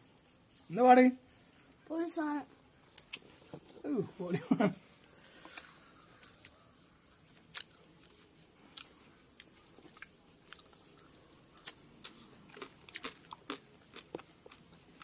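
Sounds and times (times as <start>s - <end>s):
chewing crispy food: 2.9s - 3.6s, 4.9s - 15.0s.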